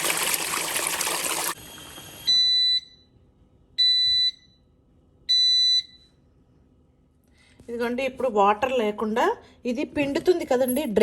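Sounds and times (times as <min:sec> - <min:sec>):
washing machine churning water: 0:00.0 - 0:02.2.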